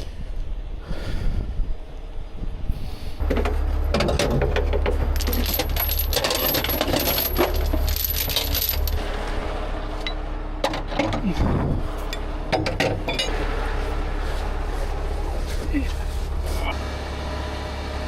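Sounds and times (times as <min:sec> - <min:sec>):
steady low rumble: 0:00.0 - 0:17.0
metal chains clinking and rattling: 0:04.1 - 0:09.0, 0:12.6 - 0:13.4.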